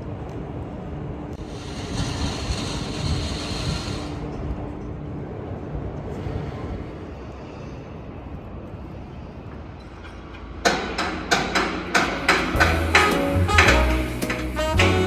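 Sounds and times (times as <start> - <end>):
urban background rumble: 0.0 - 15.0
music with sharp beats: 12.2 - 15.0.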